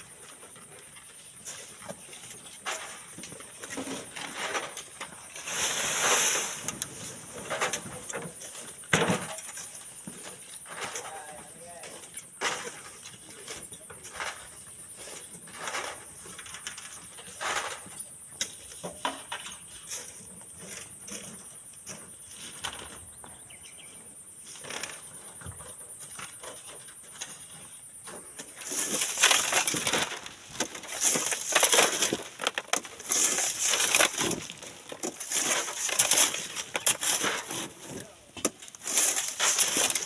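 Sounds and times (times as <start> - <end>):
sand and stones crunching: 0.0 - 17.8, 27.0 - 40.0.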